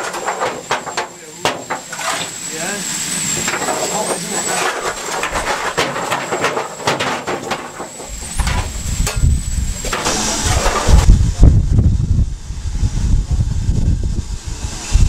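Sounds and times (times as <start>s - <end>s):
metallic clanks: 0.0s - 2.4s, 3.4s - 11.0s
heavy low rumble: 7.5s - 15.0s.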